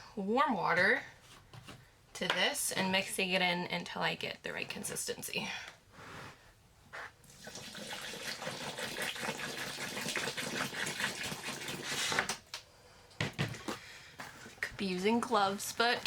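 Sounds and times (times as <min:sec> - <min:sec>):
water pouring into potting mix: 0:07.2 - 0:12.2.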